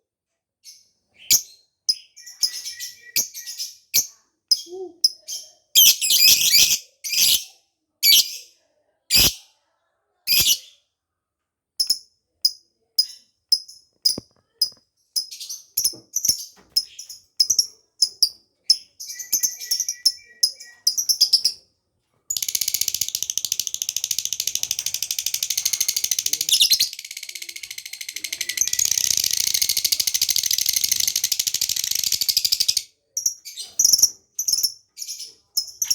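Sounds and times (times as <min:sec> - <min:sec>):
rapid bird trill: 0:22.3 - 0:32.8.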